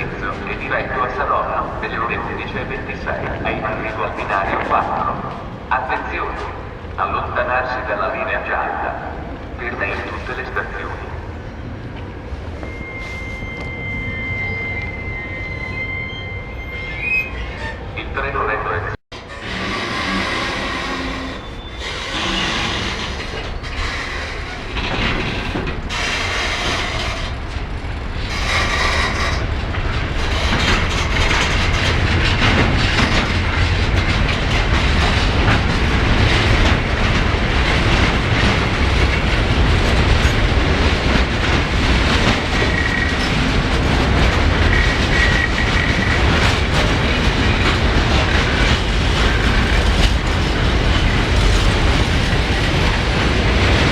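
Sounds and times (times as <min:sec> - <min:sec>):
freight train passing: 0:00.0 - 0:16.8, 0:17.6 - 0:53.9
wheel squeal: 0:12.6 - 0:17.9, 0:19.2 - 0:24.6.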